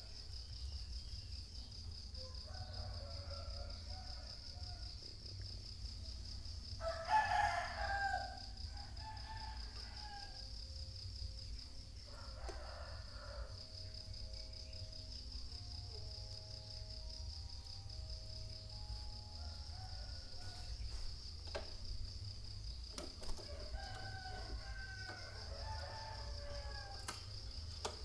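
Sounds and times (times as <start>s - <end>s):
insect chirring: 0.0s - 28.0s
rooster crowing: 2.2s - 5.0s, 6.8s - 10.5s, 12.0s - 13.7s, 18.6s - 21.2s, 23.4s - 28.0s.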